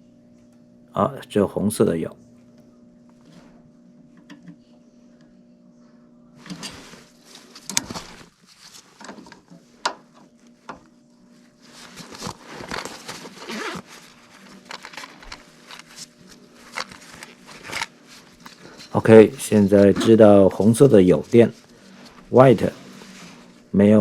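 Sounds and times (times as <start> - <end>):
low steady hum: 0.0 - 24.0
scraping and rustling of hands: 6.4 - 23.7.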